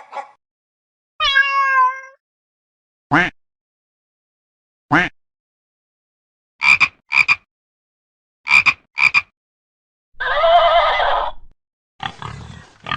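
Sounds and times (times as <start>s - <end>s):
cat meowing: 1.2s - 2.2s
frog croaking: 6.6s - 7.4s, 8.5s - 9.3s.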